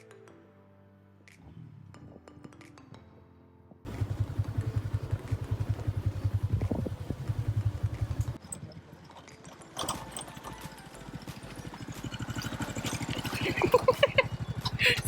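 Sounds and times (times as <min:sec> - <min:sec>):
motorbike engine idling: 0:03.9 - 0:08.4, 0:10.8 - 0:15.0
quieter engine putter: 0:03.9 - 0:15.0.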